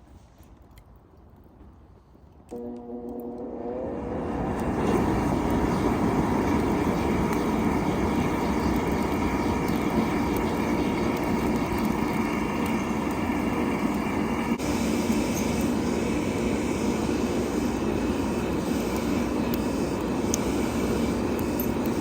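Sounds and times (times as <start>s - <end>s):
faint steady whine: 2.5s - 22.0s
mechanical roar: 3.1s - 7.3s.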